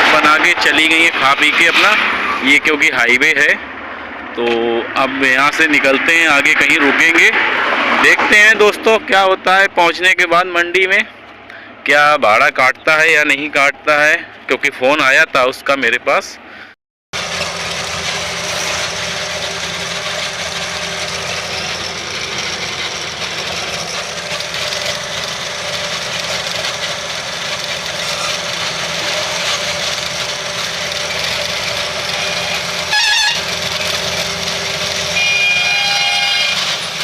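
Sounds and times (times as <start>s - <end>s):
truck engine running: 17.1s - 37.0s.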